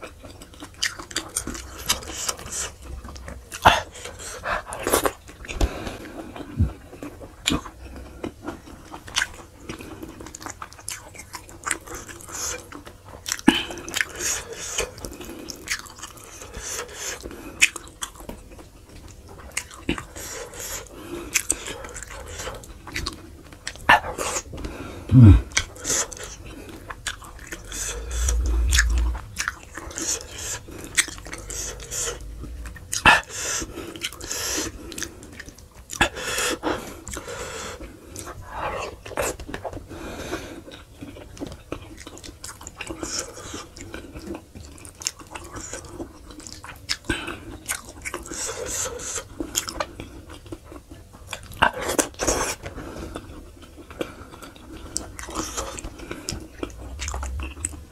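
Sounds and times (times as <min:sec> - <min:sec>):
chewing and biting meat: 0:00.0 - 0:57.9
dull low rumble: 0:25.1 - 0:25.5, 0:27.0 - 0:33.8, 0:56.3 - 0:57.9.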